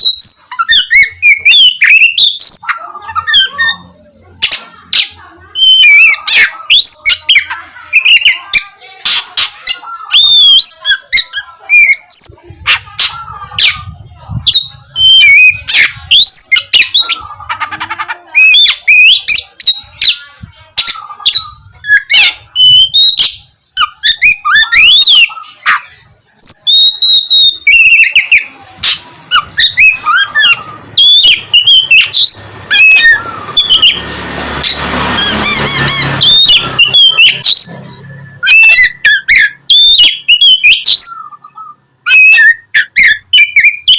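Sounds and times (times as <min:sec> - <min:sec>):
bird singing varied whistles: 0:00.0 - 0:03.8, 0:20.8 - 0:34.0, 0:35.2 - 0:43.9
harsh rasping chatter: 0:00.0 - 0:43.9.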